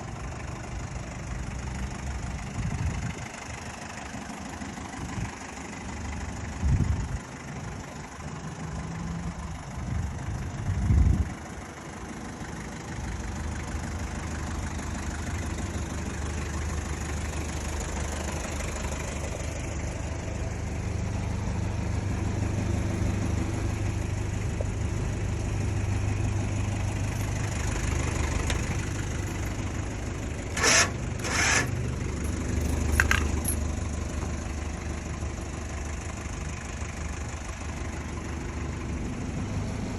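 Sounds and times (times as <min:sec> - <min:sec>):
engine idling: 0:00.0 - 0:39.9
sharp scraping or clanking: 0:30.4 - 0:33.7.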